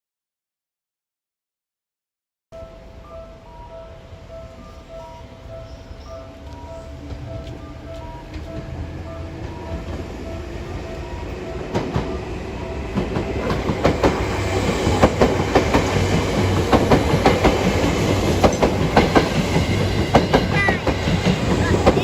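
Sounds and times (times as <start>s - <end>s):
level-crossing bell dinging: 2.6s - 22.0s
train wheels clicking over rail joints: 4.5s - 22.0s.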